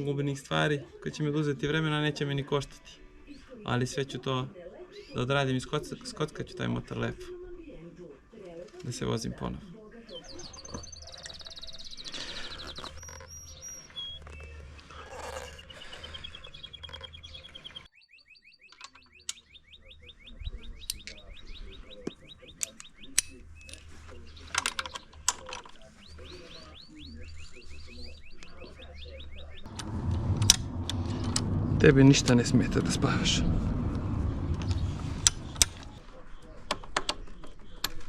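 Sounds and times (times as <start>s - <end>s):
small birds chirping: 9.9s - 38.0s
sharp clicks and knocks: 33.6s - 36.0s.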